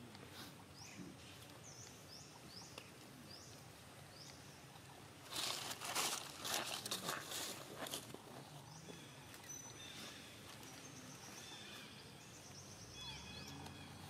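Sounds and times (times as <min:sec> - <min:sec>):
dry leaves and grass rustling: 0:05.2 - 0:08.4
bird chirping: 0:08.7 - 0:14.0.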